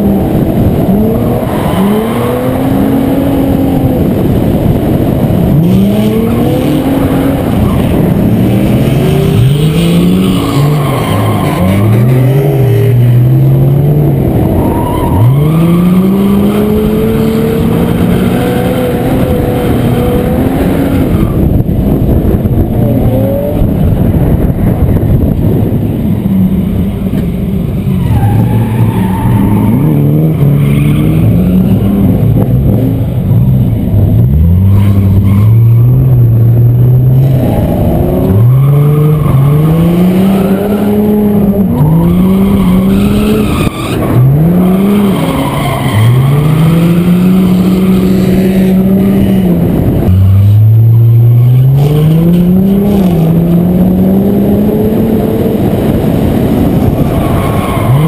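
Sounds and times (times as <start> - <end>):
car engine revving hard: 0.0 - 24.0, 28.4 - 58.0
tyres skidding on pavement: 3.8 - 17.0, 27.1 - 53.9, 55.0 - 58.0.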